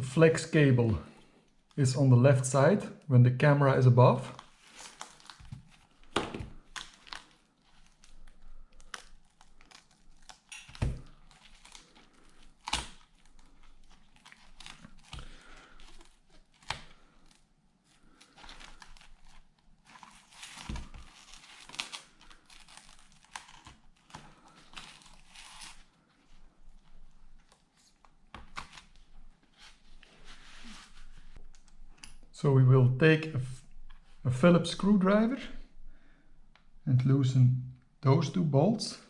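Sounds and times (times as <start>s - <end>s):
crinkling and rustling: 4.3s - 32.3s.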